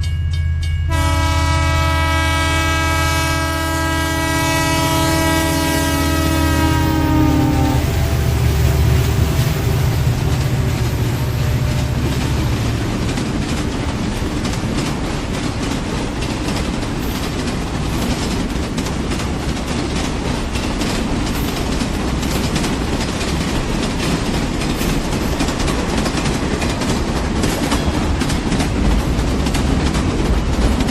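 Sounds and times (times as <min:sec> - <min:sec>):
train rumble: 0:00.0 - 0:30.9
wheels clicking over rails: 0:08.1 - 0:30.9.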